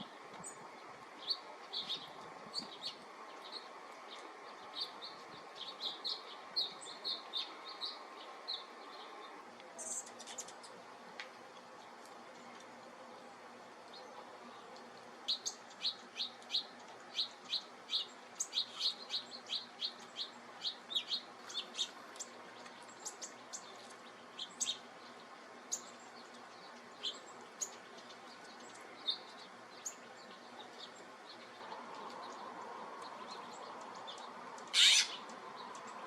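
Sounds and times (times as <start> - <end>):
small birds chip calls: 0.0 - 36.0.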